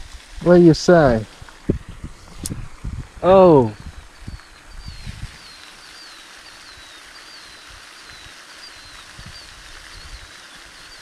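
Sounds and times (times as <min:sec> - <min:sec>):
outdoor hiss: 0:00.0 - 0:11.0
bird chirping: 0:03.3 - 0:11.0.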